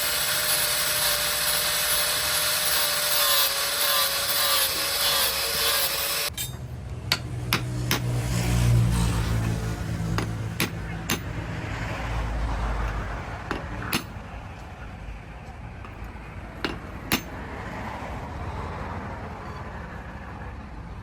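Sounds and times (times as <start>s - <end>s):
hammer knocking on metal: 9.4s - 11.4s, 12.9s - 14.2s, 15.9s - 17.3s.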